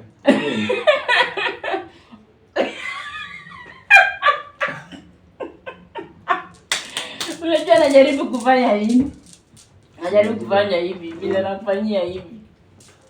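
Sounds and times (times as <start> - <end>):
people laughing and giggling: 0.2 - 1.9, 2.6 - 4.8, 5.4 - 7.4.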